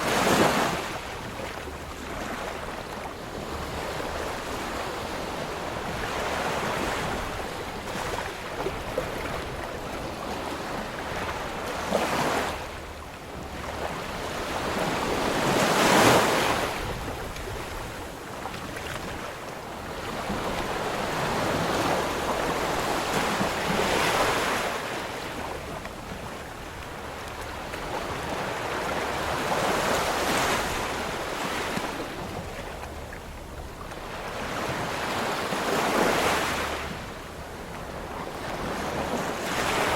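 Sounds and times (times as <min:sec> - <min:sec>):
waves breaking: 0:00.0 - 0:39.9.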